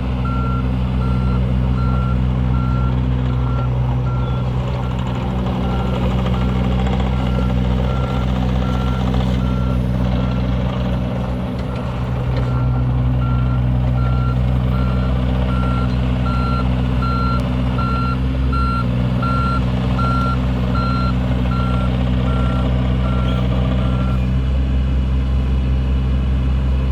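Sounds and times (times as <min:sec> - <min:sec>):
excavator diesel engine running: 0:00.0 - 0:26.9
travel alarm beeping: 0:11.6 - 0:24.1.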